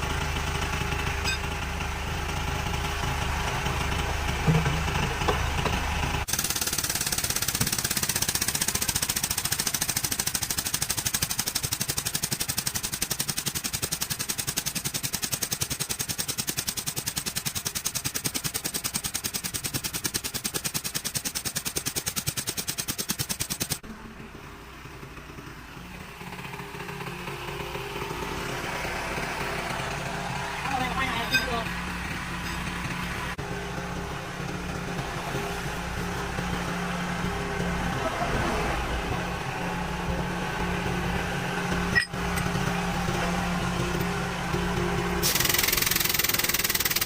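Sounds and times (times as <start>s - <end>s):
vehicle engine idling: 0.0s - 22.5s, 23.4s - 47.0s
air tool hammering: 4.4s - 23.8s, 45.2s - 47.0s.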